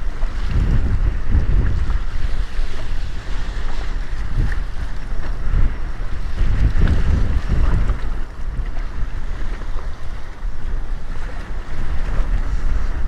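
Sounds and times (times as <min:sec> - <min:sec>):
choppy waves sloshing: 0:00.0 - 0:13.0
wind buffeting microphone: 0:00.0 - 0:13.0.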